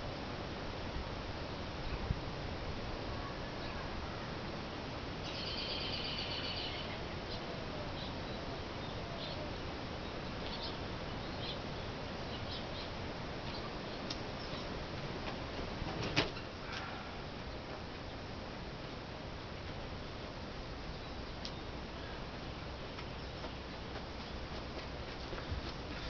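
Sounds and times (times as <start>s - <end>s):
outdoor background hiss: 0.0s - 26.0s
small birds chirping: 5.2s - 14.8s, 20.0s - 24.4s.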